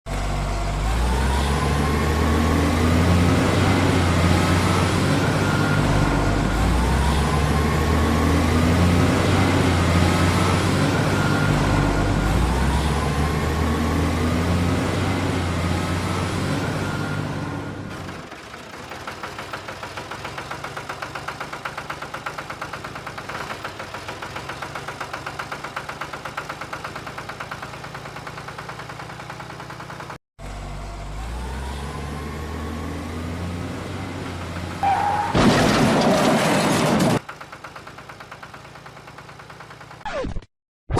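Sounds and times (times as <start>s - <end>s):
truck engine revving: 0.1s - 18.5s, 27.0s - 37.2s
truck engine chugging idle: 18.2s - 30.2s, 37.2s - 40.0s.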